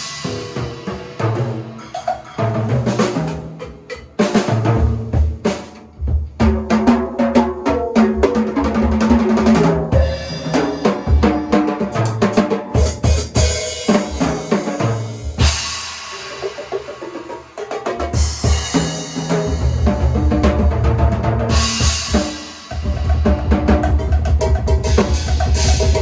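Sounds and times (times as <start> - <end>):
cymbal crash: 0.0 - 1.9, 9.9 - 17.0
drum kit playing: 0.0 - 26.0.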